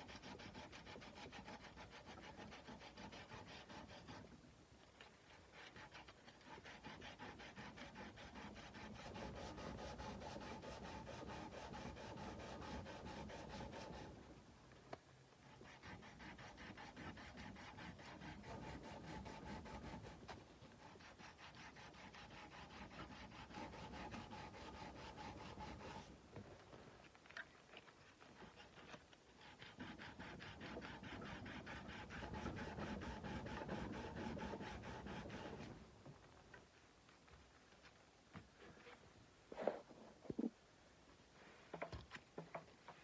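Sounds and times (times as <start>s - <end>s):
sandpaper rubbing on steel blade: 0.0s - 4.3s, 5.4s - 14.2s, 15.4s - 26.1s, 28.4s - 35.8s.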